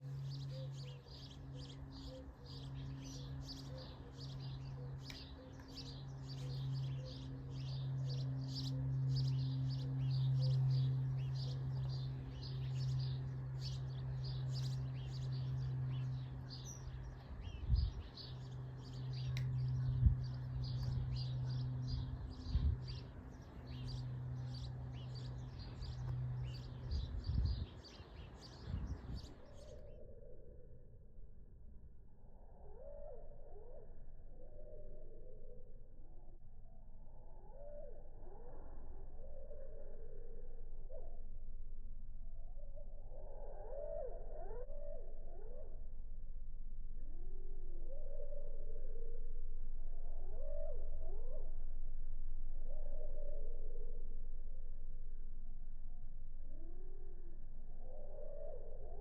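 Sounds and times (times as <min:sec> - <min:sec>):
birds chirping: 0:00.0 - 0:30.1
low steady hum: 0:00.0 - 0:59.0.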